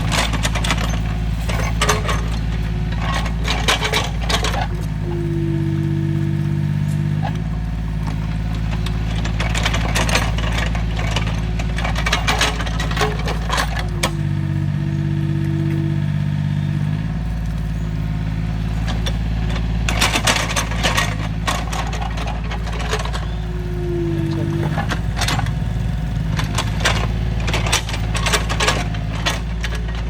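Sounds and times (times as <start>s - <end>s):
excavator engine running: 0.0s - 30.0s.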